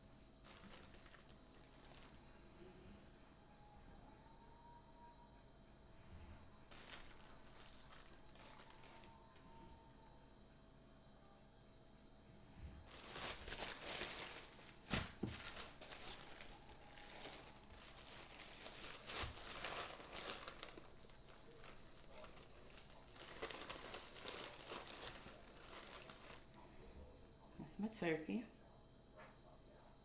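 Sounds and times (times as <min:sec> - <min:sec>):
plastic packaging crinkling: 0:00.4 - 0:02.2, 0:06.6 - 0:09.4, 0:12.8 - 0:26.6.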